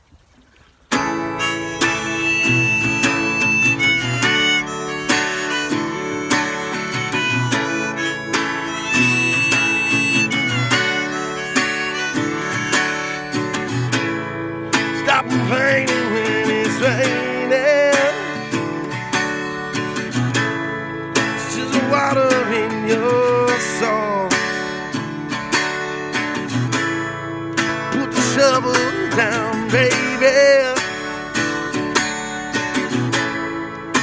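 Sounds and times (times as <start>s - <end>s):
acoustic guitar strumming: 0.9s - 34.0s
harmonica long notes: 1.1s - 24.9s.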